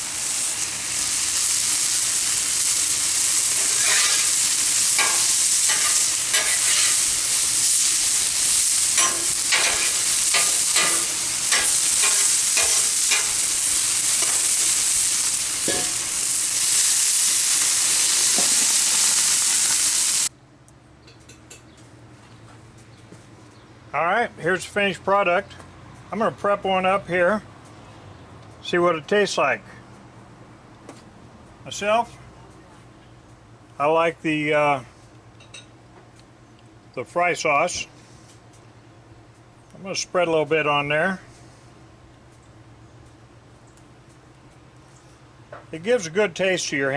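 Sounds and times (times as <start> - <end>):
food sizzling on a griddle: 0.0 - 20.3.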